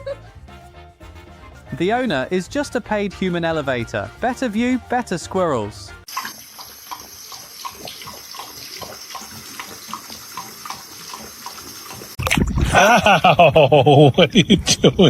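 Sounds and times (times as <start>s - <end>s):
water running and splashing: 6.1s - 12.7s.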